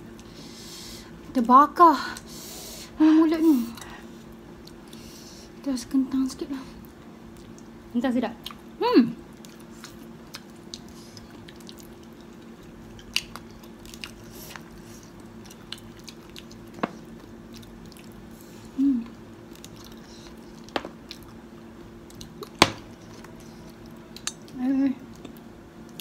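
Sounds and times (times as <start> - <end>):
people chewing food: 0.0 - 1.3, 3.6 - 5.6, 6.7 - 26.0
faint steady hum: 0.0 - 26.0
person humming mm: 18.7 - 19.2.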